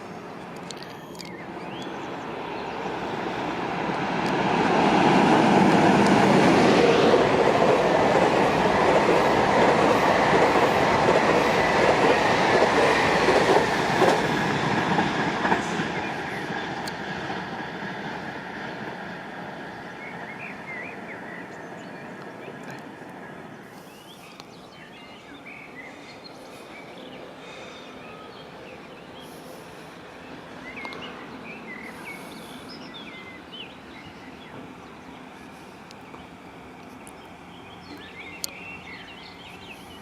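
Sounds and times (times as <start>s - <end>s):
train passing: 0.0s - 40.0s.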